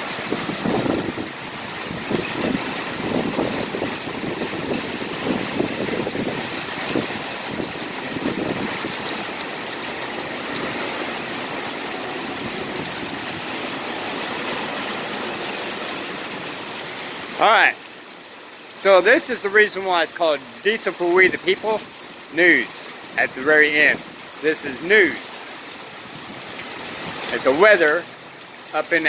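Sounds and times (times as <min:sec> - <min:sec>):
heavy rain hissing: 0:00.0 - 0:29.0.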